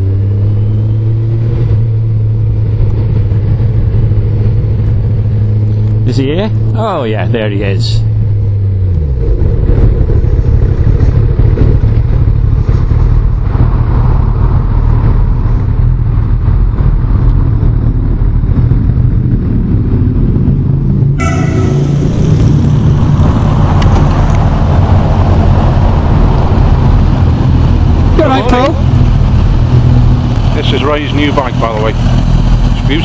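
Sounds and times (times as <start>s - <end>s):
motorcycle engine rumbling: 0.0s - 33.0s.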